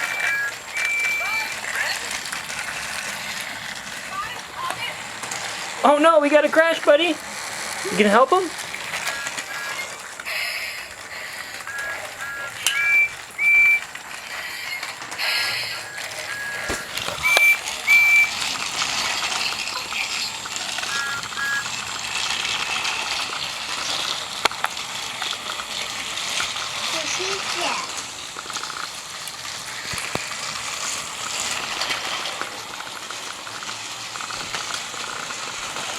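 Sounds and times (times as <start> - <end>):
short electronic beeps: 0.0 - 2.2, 9.0 - 18.5, 20.7 - 21.8
toy train motors and gears clattering: 0.0 - 35.9.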